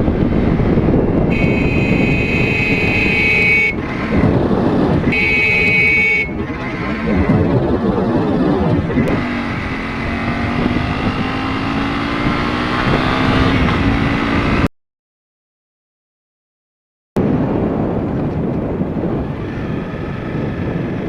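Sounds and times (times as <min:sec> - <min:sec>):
motorcycle engine running: 0:00.0 - 0:14.6
wind on microphone: 0:00.0 - 0:14.7, 0:17.2 - 0:21.0.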